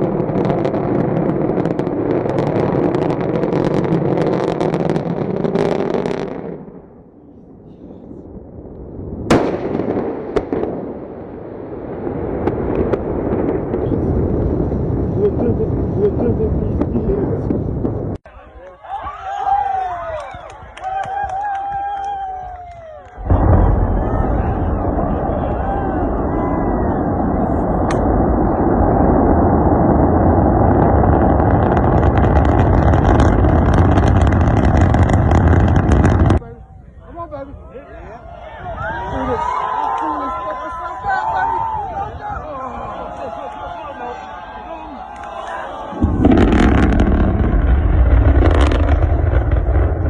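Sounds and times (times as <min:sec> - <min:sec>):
rocket roaring: 0:00.0 - 0:18.3, 0:23.0 - 0:36.4, 0:44.1 - 0:50.0
scattered crackles: 0:23.0 - 0:36.4, 0:45.1 - 0:50.0
crackling: 0:45.1 - 0:50.0.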